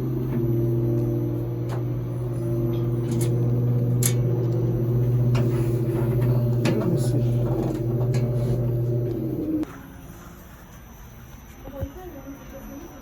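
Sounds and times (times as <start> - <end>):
cooling fan low hum: 0.0 - 9.7.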